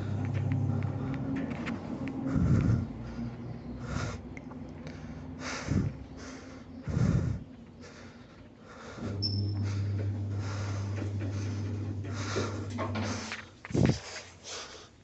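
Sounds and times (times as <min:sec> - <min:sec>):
steady low hum: 0:00.0 - 0:14.1
lift cabin strange noise: 0:09.0 - 0:13.4.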